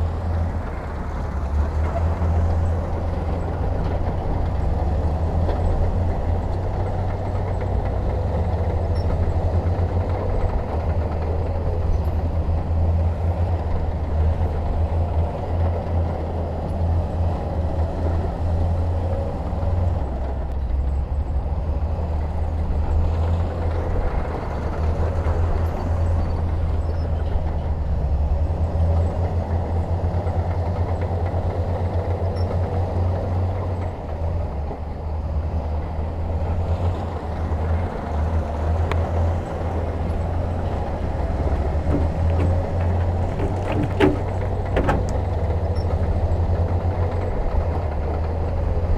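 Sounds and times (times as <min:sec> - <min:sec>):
heavy diesel engine rumble: 0:27.9 - 0:48.9.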